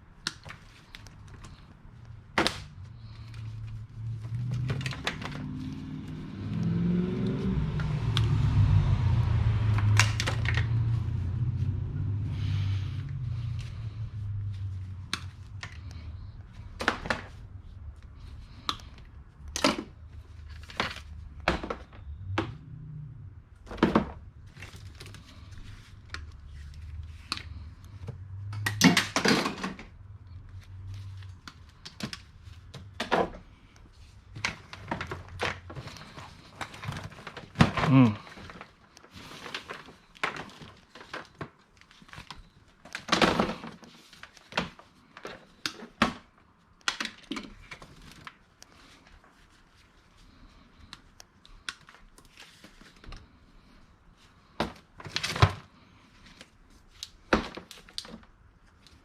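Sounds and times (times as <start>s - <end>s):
plastic crackling: 0.1s - 6.7s, 23.6s - 53.8s
low hum: 2.1s - 16.8s.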